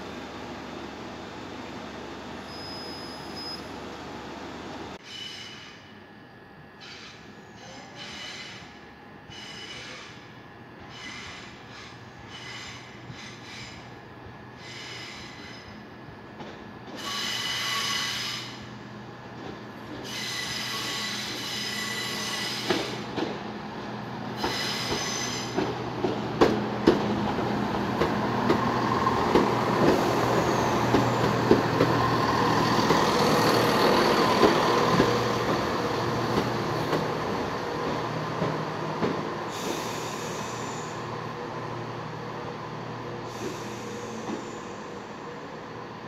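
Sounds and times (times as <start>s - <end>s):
diesel train engine: 0.0s - 46.0s
high-pitched wheel squeals: 2.4s - 3.7s
train wheels clicking over joints: 24.4s - 30.2s.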